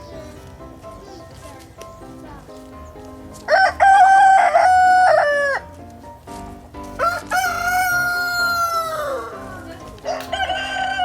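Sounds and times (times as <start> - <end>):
rooster crowing: 3.5 - 5.7, 7.0 - 11.0.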